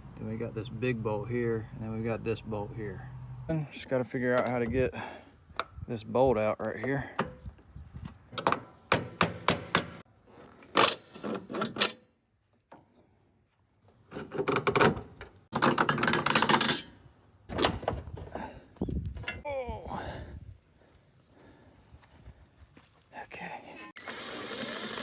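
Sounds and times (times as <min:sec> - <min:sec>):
hand tools clanking on bolt: 0:04.2 - 0:04.8, 0:08.4 - 0:12.2, 0:14.2 - 0:17.8.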